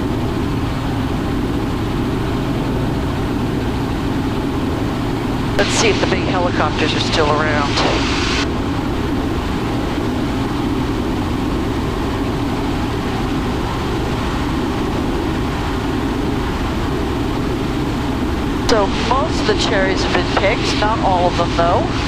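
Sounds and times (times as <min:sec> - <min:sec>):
helicopter cabin hum: 0:00.0 - 0:22.0.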